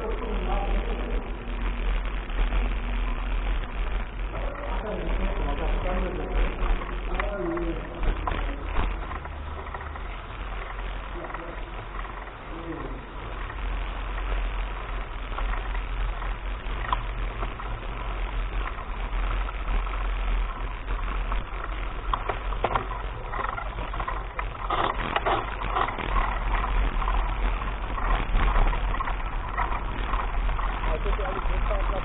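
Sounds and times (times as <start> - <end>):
bike tyres clattering on dirt: 6.7 - 32.0
wind rumble on microphone: 13.3 - 32.0.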